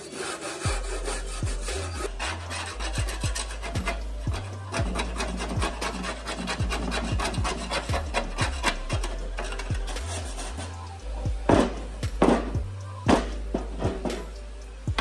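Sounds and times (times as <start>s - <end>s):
hand tool rasping on metal: 0.0s - 11.8s.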